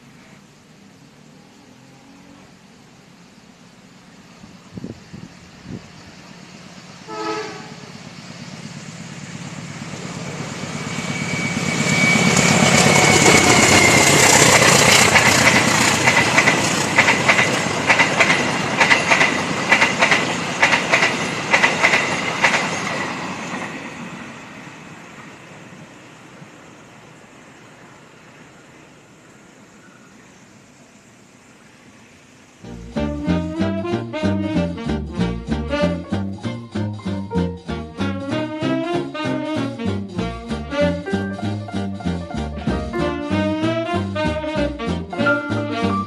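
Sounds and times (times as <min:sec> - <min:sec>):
train passing: 0:00.0 - 0:46.0
train horn blast: 0:07.0 - 0:08.0, 0:32.6 - 0:36.3, 0:38.0 - 0:41.6, 0:43.0 - 0:46.0
steady high tone: 0:07.1 - 0:15.8, 0:32.6 - 0:46.0
wheels clacking over rail joints: 0:08.4 - 0:25.3.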